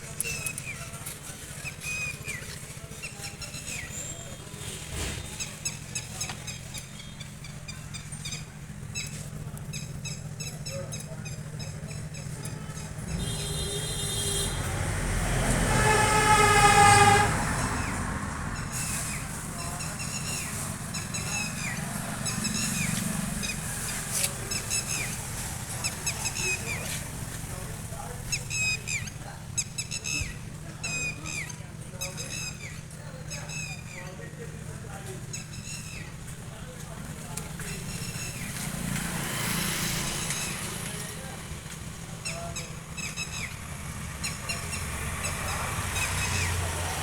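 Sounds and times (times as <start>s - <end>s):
birds chirping: 0.0s - 47.0s
diesel engine idling: 0.0s - 47.0s
car horn: 12.5s - 18.0s.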